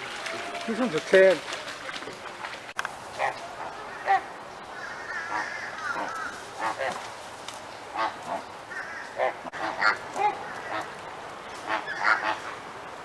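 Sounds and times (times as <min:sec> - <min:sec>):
flamingos honking: 0:03.1 - 0:07.0, 0:07.9 - 0:12.6.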